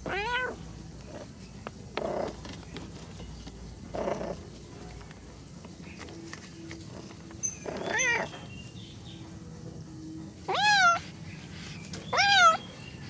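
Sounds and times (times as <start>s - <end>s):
cat meowing: 0.0s - 0.6s, 7.8s - 8.3s, 10.5s - 11.0s, 12.1s - 12.6s.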